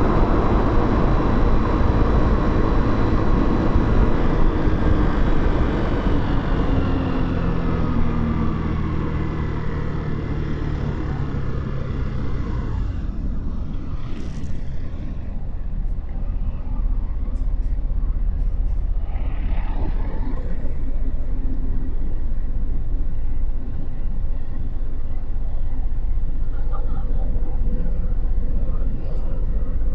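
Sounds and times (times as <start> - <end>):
wind and road noise: 0.0 - 29.9.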